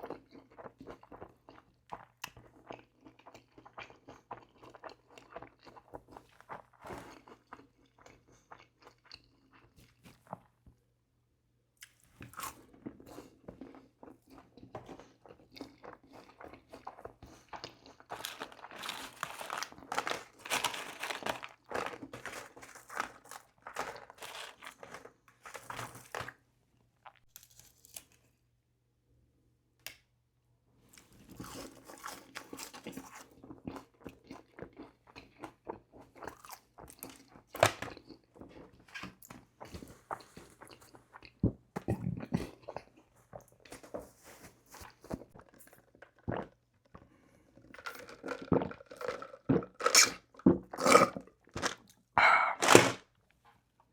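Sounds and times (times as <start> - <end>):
chewing and crunching food: 0.0 - 10.8, 11.8 - 26.4, 30.9 - 53.0
wet mouth clicks: 52.2 - 52.8.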